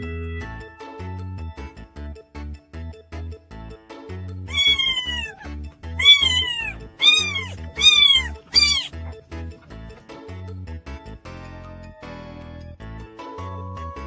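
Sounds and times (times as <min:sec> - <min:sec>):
cat meowing: 0:04.5 - 0:09.0.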